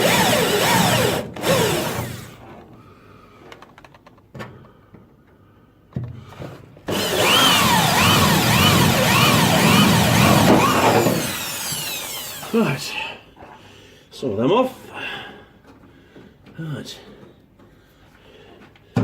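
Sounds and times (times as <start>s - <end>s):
power tool running: 0.0s - 2.4s, 6.9s - 12.8s.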